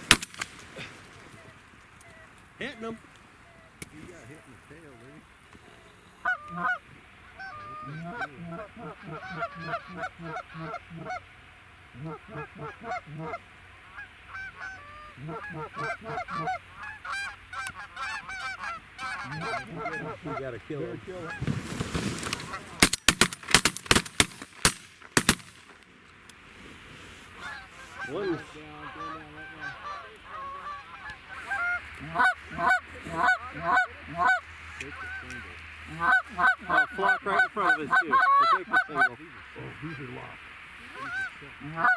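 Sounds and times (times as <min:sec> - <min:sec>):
geese honking: 0:00.0 - 0:23.7, 0:27.0 - 0:41.9.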